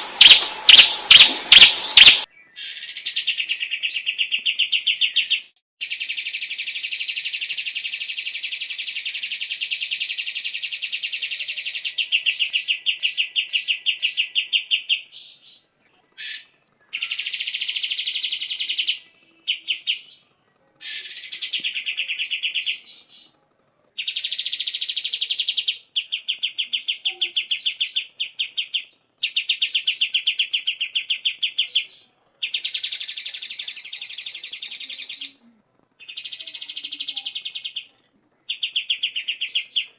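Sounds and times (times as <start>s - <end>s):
sharp whistled bird notes: 0.0s - 4.1s
bird singing fast rattling trills: 0.0s - 5.1s.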